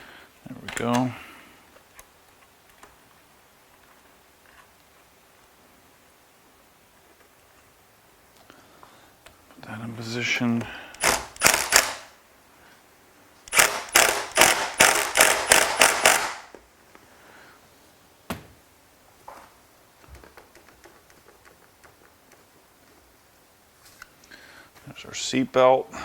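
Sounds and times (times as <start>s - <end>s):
sharp metal clicks: 10.9s - 12.1s, 13.5s - 16.5s.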